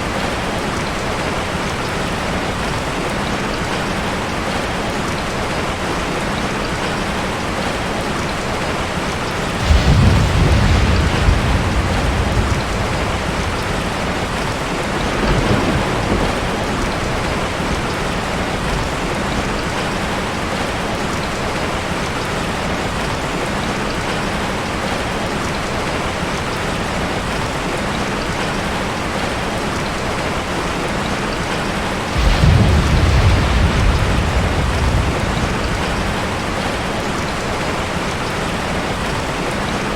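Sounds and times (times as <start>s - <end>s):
heavy rain falling: 0.0s - 39.9s
low rolls of thunder: 9.4s - 20.8s, 32.0s - 39.3s.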